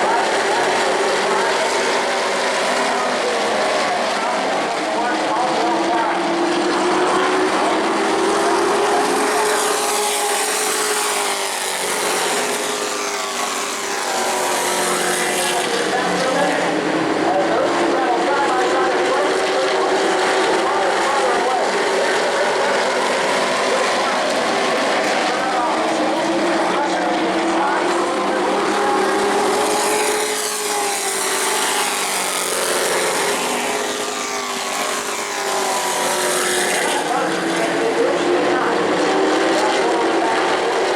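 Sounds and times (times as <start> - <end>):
racing truck engines: 0.0 - 40.9.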